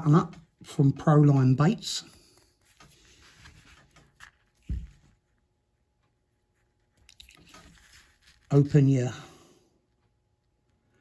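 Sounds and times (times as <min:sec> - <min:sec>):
faint handling noises: 0:01.9 - 0:09.2.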